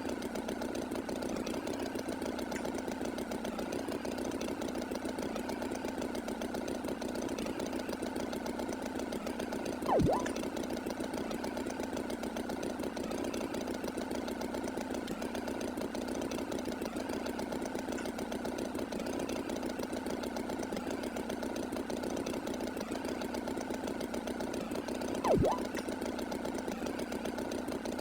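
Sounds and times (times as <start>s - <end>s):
swooping tone: 9.9s - 10.4s, 25.3s - 25.8s.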